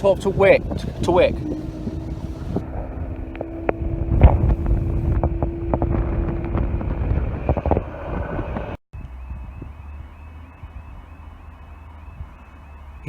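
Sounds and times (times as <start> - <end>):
train rumble and hum: 0.0 - 8.8.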